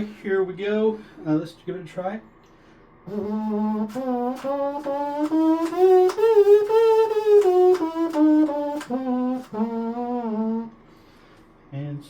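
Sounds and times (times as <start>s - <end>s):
trumpet playing a scale: 3.1s - 10.8s.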